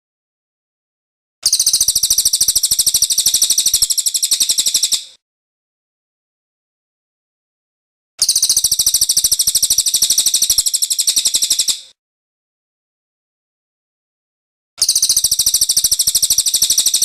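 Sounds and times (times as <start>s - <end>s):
bird high rapid trill: 1.4s - 5.2s, 8.2s - 11.9s, 14.8s - 17.0s.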